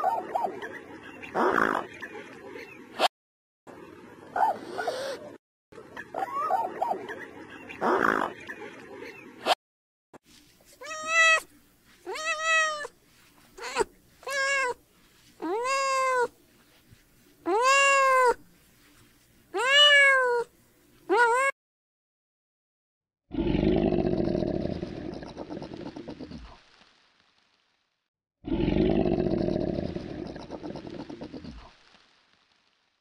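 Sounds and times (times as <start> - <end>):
cat meowing: 10.8 - 11.5, 12.1 - 12.9, 13.6 - 14.8, 15.4 - 16.3, 17.5 - 18.4, 19.6 - 20.5.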